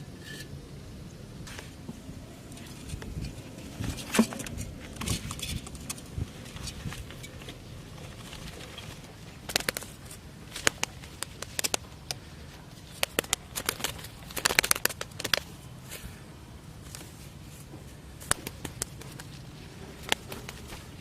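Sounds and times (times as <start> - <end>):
steady low background noise: 0.0 - 21.0
sharp clicks and taps: 18.2 - 19.4.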